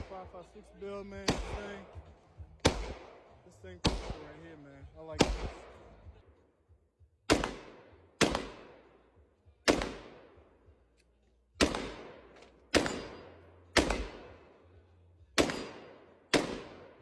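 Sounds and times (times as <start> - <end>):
gunshots with echo: 0.0 - 0.5, 1.1 - 6.1, 7.3 - 10.6, 11.6 - 14.7, 15.4 - 17.0.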